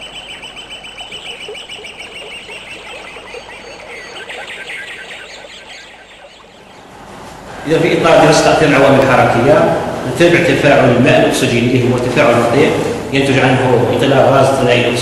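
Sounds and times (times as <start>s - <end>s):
birds chirping: 0.0s - 8.9s.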